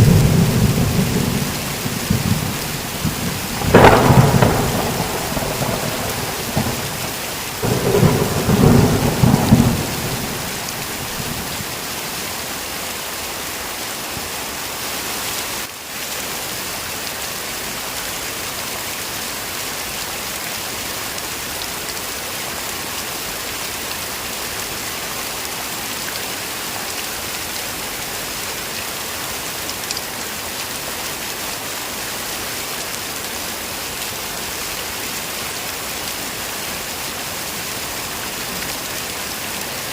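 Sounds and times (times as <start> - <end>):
thunder rumbling: 0.0 - 11.8
heavy rain falling: 0.0 - 39.9.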